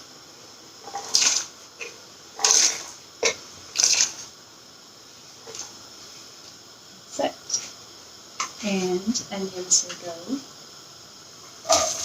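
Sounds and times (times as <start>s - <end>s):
potato slices rustling into pan: 0.8s - 4.4s, 11.5s - 12.0s.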